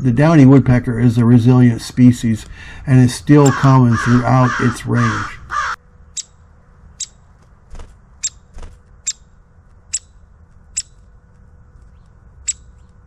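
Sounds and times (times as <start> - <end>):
woodpecker calling: 3.4 - 6.4, 11.9 - 13.0.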